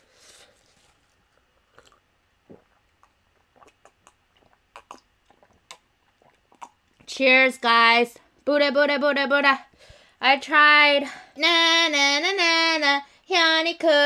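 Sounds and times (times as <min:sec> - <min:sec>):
soft rustle: 0:00.0 - 0:01.9
person drinking and swallowing: 0:01.4 - 0:07.1.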